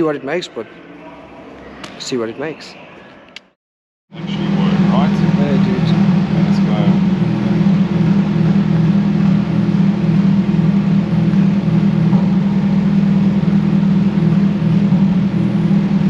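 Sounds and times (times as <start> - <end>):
engine running steadily: 4.2 - 16.0.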